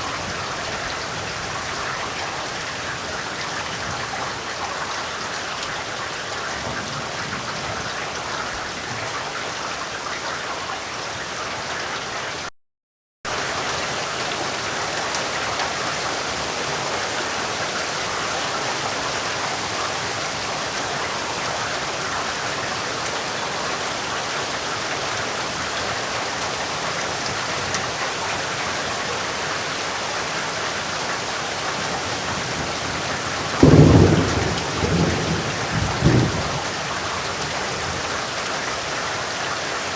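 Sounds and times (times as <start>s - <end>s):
steady rain falling: 0.0s - 12.5s, 13.3s - 39.9s
low rumble of thunder: 31.9s - 38.2s.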